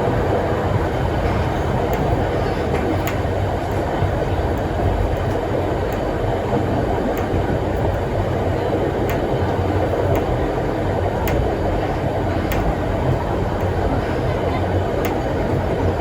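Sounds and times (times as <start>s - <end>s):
train carriage rumbling on rails: 0.0s - 16.0s
sharp wheel clicks: 2.8s - 3.3s, 7.1s - 8.1s, 8.9s - 13.8s.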